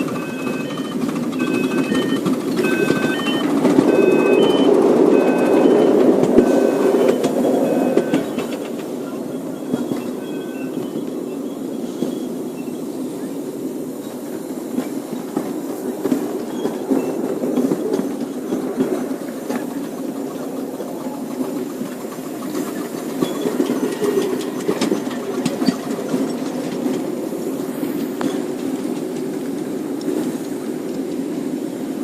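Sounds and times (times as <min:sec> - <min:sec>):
train wheels rumbling on rails: 0:00.0 - 0:32.0
clicks over rail joints: 0:14.8 - 0:31.3.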